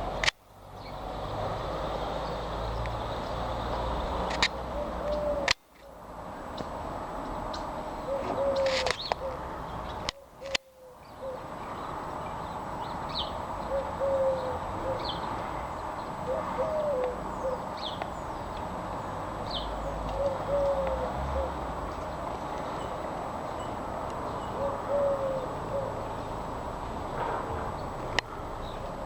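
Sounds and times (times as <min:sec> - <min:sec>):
small birds chirping: 0:00.0 - 0:27.2
pigeon cooing: 0:04.6 - 0:05.6, 0:08.0 - 0:11.5, 0:13.6 - 0:15.4, 0:16.2 - 0:17.8, 0:19.8 - 0:21.7, 0:24.5 - 0:26.5.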